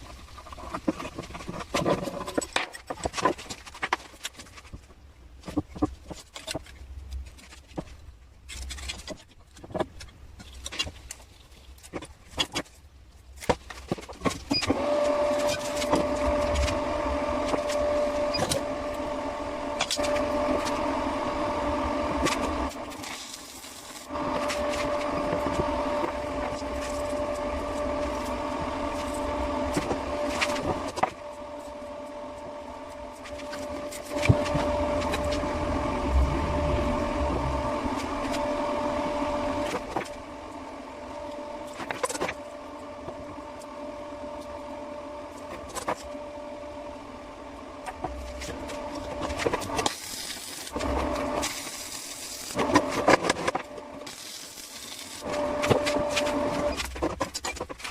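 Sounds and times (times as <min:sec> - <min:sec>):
small electric motor humming: 0:14.5 - 0:57.1.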